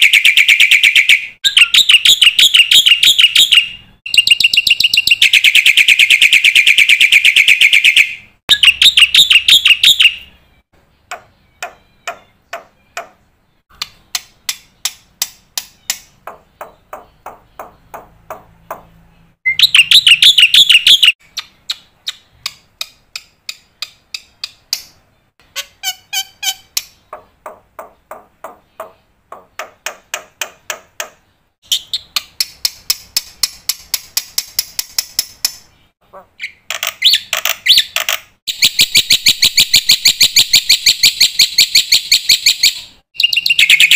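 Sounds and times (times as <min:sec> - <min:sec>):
sharp bird chip notes: 0:00.0 - 0:27.1.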